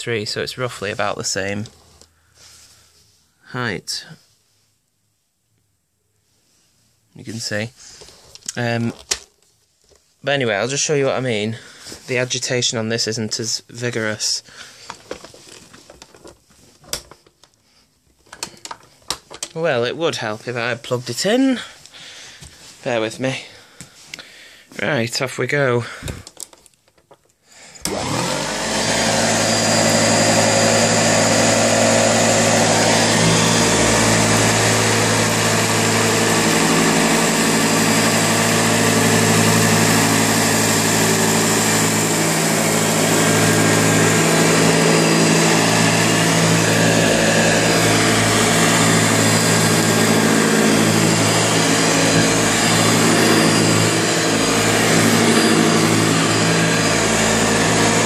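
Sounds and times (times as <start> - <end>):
vacuum cleaner motor running: 27.8 - 58.0.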